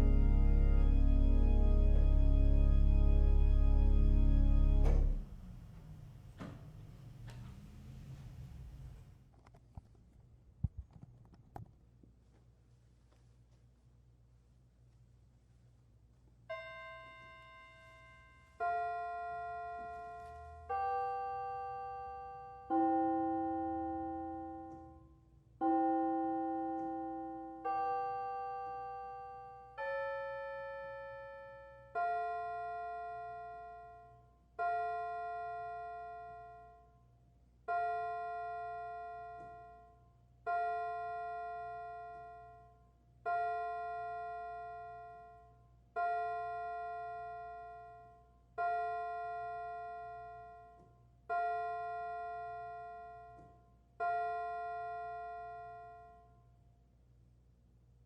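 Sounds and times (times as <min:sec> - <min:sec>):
piano chords: 0:00.0 - 0:05.8.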